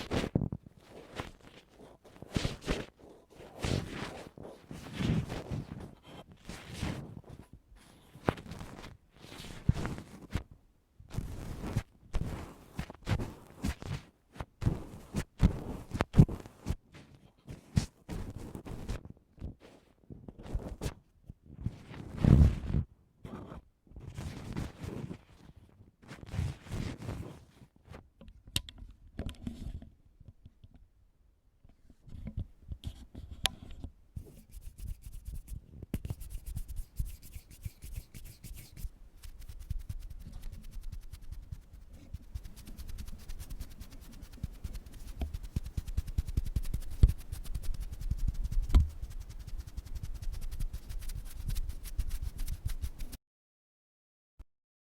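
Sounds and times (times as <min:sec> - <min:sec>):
ear pick scratching microphone: 0:00.0 - 0:01.7, 0:11.1 - 0:14.0, 0:34.2 - 0:53.2.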